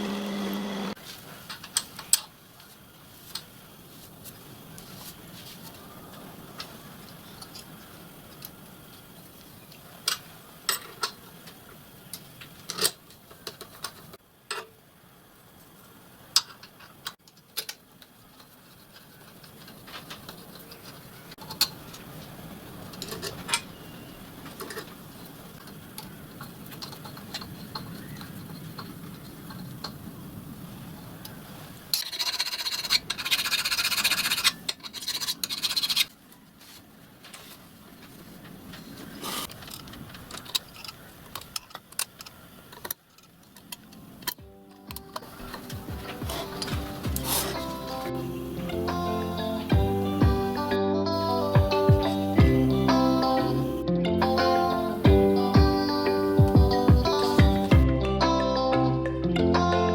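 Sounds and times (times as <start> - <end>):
loud rasping scraping: 46.2 - 47.7.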